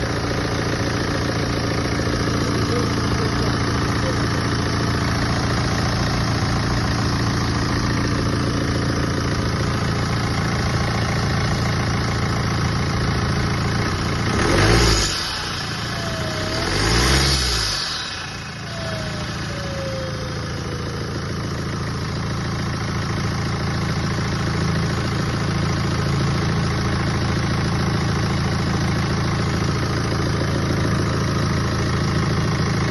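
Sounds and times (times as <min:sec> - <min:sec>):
falling turbo whine: 0:00.0 - 0:22.1
diesel engine idling: 0:00.0 - 0:32.9
engine revving: 0:13.2 - 0:21.3.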